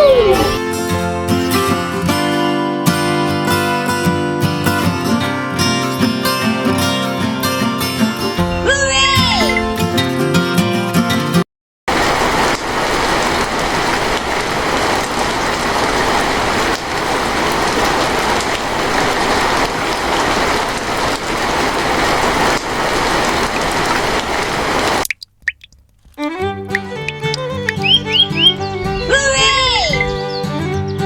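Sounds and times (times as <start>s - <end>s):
falling water hissing: 11.9s - 30.3s.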